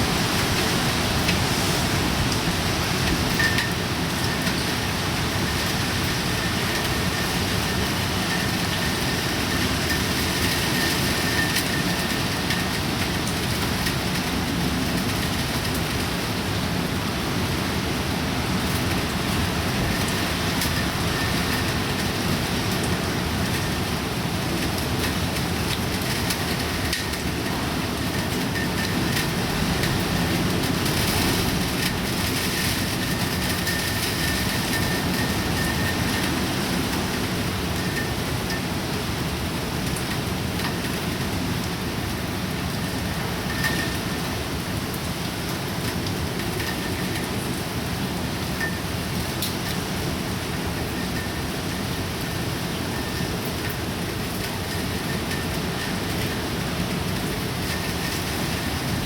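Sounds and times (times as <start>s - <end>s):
heavy rain hissing: 0.0s - 8.3s.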